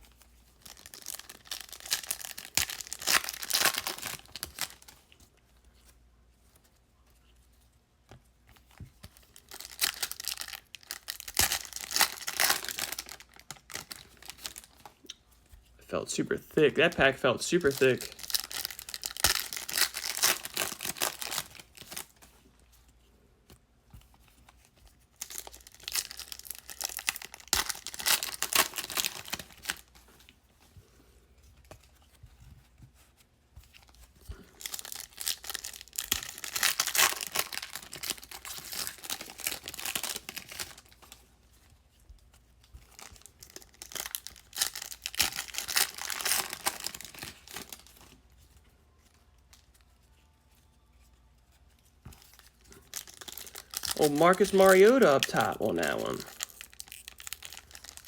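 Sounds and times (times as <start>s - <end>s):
card pack wrappers crinkling: 0.0s - 5.2s, 9.0s - 15.1s, 16.0s - 22.4s, 24.4s - 30.4s, 33.7s - 41.7s, 42.5s - 50.2s, 52.0s - 58.0s.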